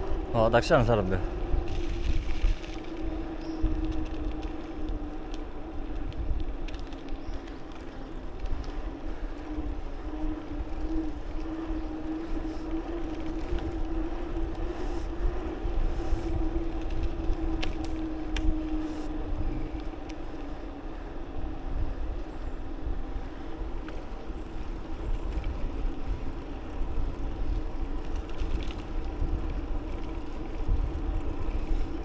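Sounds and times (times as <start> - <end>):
wind rumbling on microphone: 0.0 - 32.0
faint ticks: 1.7 - 20.6.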